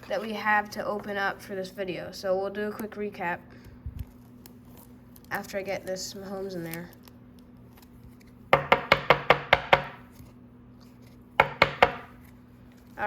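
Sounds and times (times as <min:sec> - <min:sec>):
sharp taps on hard surface: 0:11.4 - 0:12.1.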